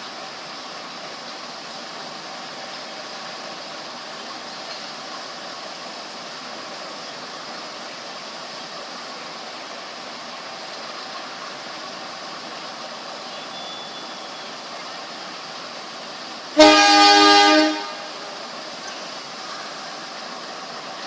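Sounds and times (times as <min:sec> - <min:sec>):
train horn blast: 0:16.6 - 0:18.4.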